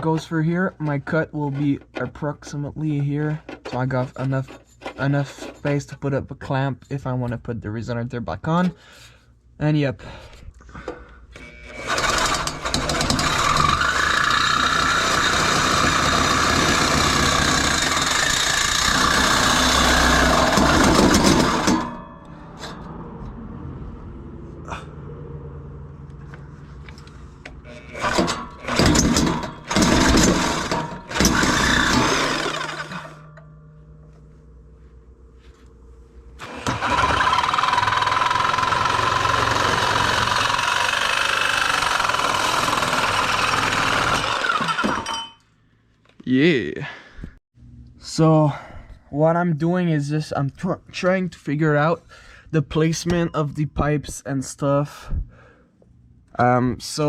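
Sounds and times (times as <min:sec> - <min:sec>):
power saw cutting metal pipe: 0:11.4 - 0:23.0, 0:27.6 - 0:33.6, 0:36.4 - 0:45.4.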